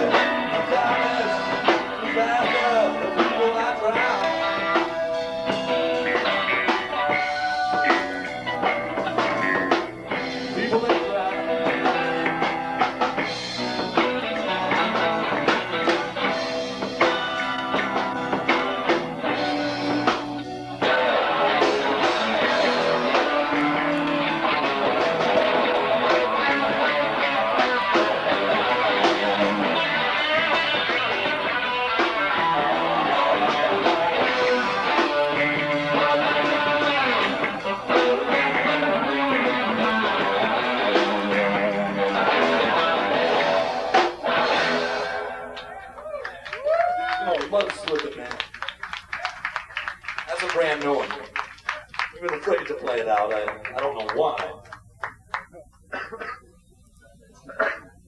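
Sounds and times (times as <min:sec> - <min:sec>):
guitar strumming: 0:00.0 - 0:45.8
live rock band playing: 0:00.0 - 0:55.4
bass guitar: 0:00.0 - 0:55.9
drums: 0:00.0 - 0:58.0.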